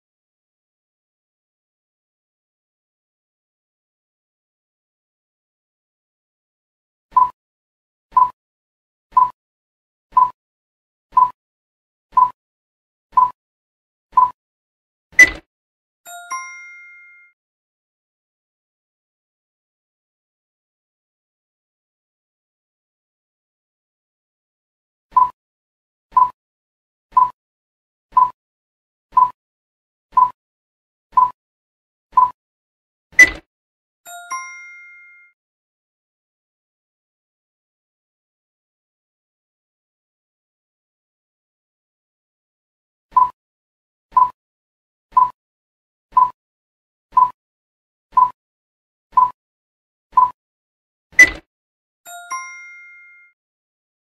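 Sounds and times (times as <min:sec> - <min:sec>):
short timer beeps: 0:09.1 - 0:09.4, 0:11.2 - 0:11.4, 0:13.2 - 0:13.4, 0:14.2 - 0:14.4, 0:27.1 - 0:27.4, 0:28.1 - 0:28.4, 0:29.2 - 0:29.4, 0:30.2 - 0:30.4, 0:31.2 - 0:31.4, 0:32.2 - 0:32.4, 0:43.1 - 0:43.4, 0:44.1 - 0:44.4, 0:45.1 - 0:45.4, 0:46.2 - 0:46.4, 0:47.2 - 0:47.4, 0:48.2 - 0:48.4, 0:49.2 - 0:49.4, 0:50.2 - 0:50.4.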